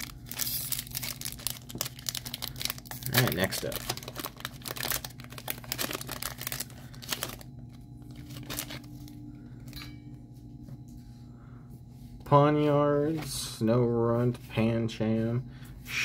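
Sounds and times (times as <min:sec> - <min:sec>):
cards rustling and ticking: 0:00.0 - 0:09.2
foil wrapper crinkling and tearing: 0:00.0 - 0:09.2.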